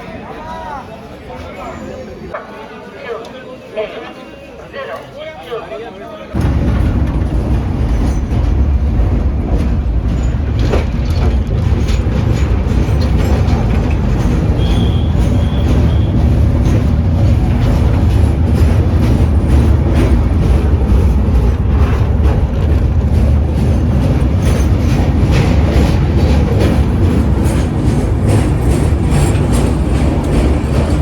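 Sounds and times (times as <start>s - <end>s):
train rumbling on rails: 6.3s - 31.0s
wheels clicking: 6.4s - 31.0s.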